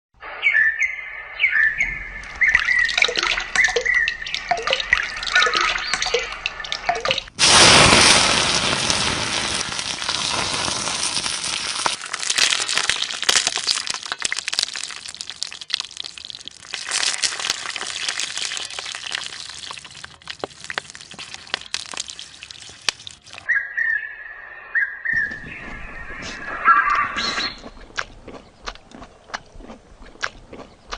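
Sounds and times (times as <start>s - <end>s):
food sizzling in hot oil: 7.4s - 23.5s.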